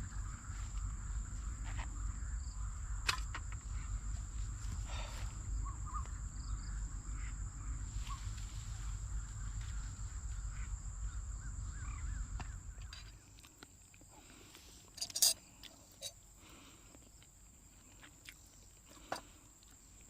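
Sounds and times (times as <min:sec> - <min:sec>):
low rumble: 0:00.0 - 0:13.1
bird calls: 0:00.0 - 0:13.4
insect trill: 0:00.0 - 0:19.2.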